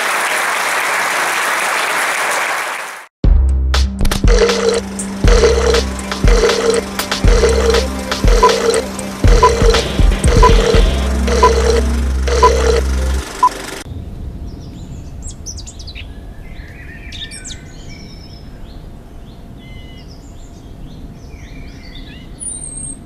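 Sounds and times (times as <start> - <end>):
loud music: 3.2 - 13.8
short beeping tone: 4.3 - 13.6
birds singing and chirping: 14.6 - 23.0.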